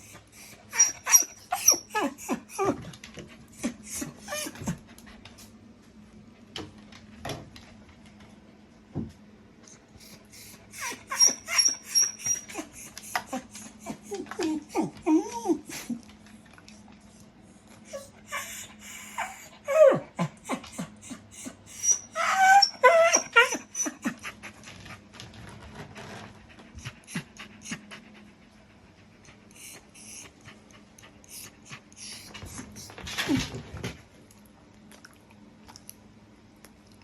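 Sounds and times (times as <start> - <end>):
dog whining in high whimpers: 0.0 - 2.9, 3.6 - 4.8, 10.4 - 16.0, 17.9 - 24.4, 31.3 - 33.6.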